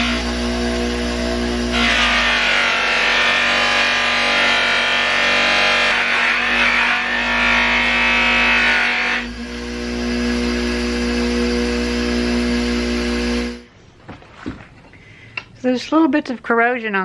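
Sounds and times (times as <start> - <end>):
buffing wheel humming: 0.0 - 1.8, 9.2 - 13.7.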